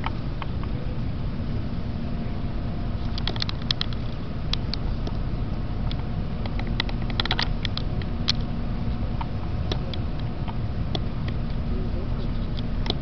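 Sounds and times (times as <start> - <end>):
train cabin rumble: 0.0 - 13.0
light clicks and ticks: 3.0 - 5.2, 5.8 - 8.5.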